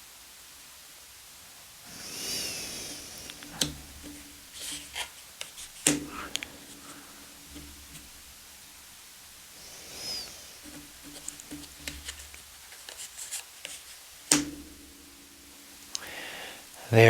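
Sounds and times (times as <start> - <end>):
card snapping: 2.2 - 8.4, 9.9 - 15.2
cards clicking and rustling: 2.8 - 8.5, 9.8 - 15.1.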